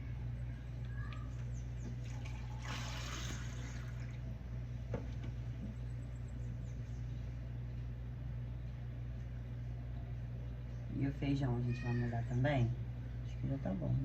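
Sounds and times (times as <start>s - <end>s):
steady low hum: 0.0s - 14.0s
water pouring into cup: 2.0s - 4.2s.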